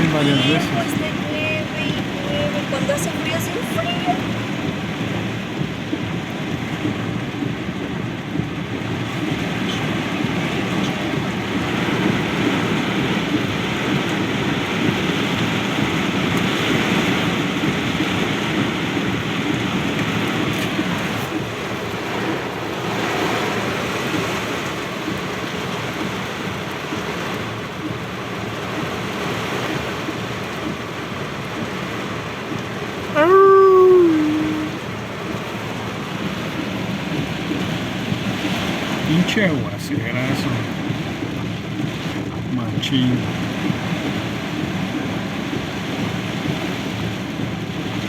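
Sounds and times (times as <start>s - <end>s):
heavy rain: 0.0s - 48.0s
short pitched cry: 33.2s - 34.8s.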